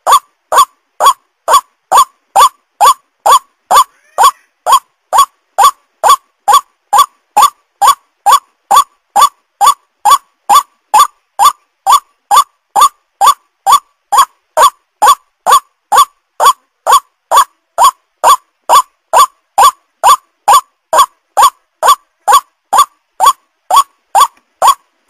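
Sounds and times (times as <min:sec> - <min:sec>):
bird call with upward notes: 0:00.0 - 0:04.8.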